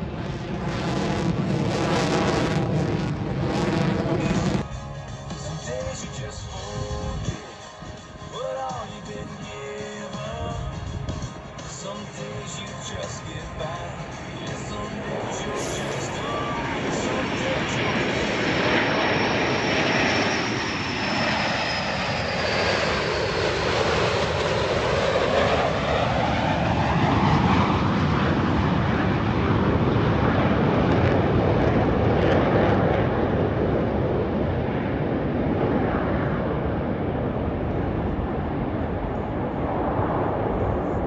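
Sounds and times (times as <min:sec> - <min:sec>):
airplane flying past: 0:00.0 - 0:04.7, 0:13.0 - 0:41.0
high engine whine: 0:00.0 - 0:06.5, 0:11.4 - 0:23.1.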